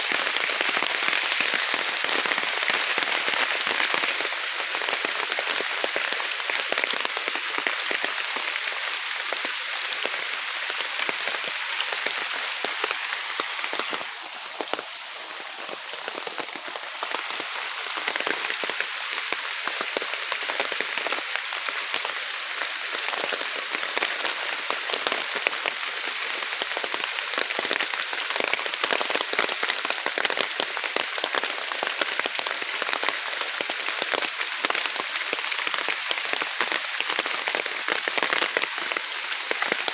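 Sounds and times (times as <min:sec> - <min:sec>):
heavy rain in woodland: 0:00.0 - 0:39.9.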